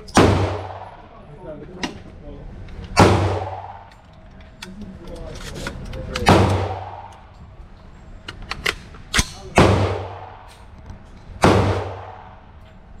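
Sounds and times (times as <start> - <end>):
gunshots echoing: 0.0 - 1.2, 3.0 - 3.9, 6.2 - 7.3, 8.8 - 10.5, 11.4 - 12.5.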